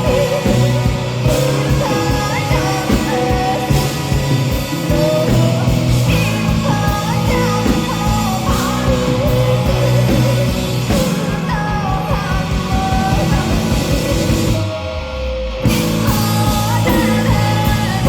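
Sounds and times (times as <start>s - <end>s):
woman singing: 0.0s - 14.7s, 15.7s - 18.0s
live rock band: 0.0s - 18.0s.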